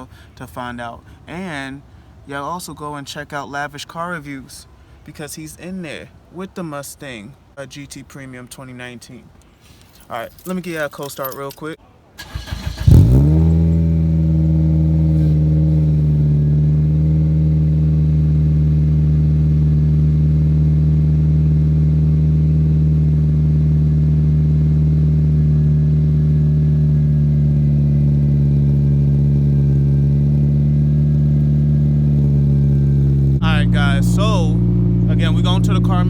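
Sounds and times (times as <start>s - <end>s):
car engine idling: 12.2s - 36.0s.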